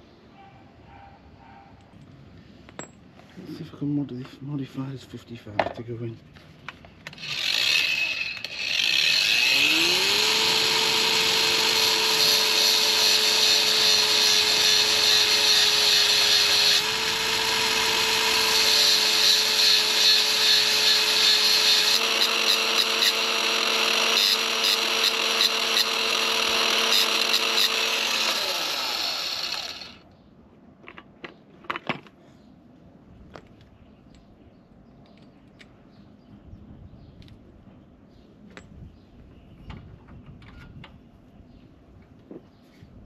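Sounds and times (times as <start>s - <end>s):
power tool grinding: 7.0s - 30.0s.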